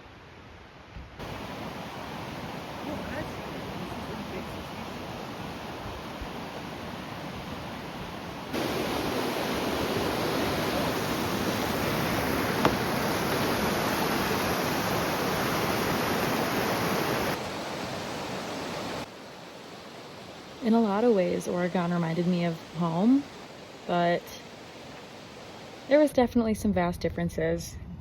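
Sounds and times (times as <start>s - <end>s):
steady rushing outdoor noise: 1.2s - 21.4s.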